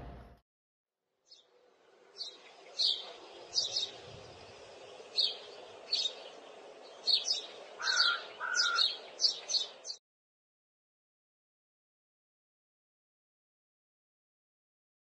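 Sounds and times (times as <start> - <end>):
small birds chirping: 1.3 - 10.0.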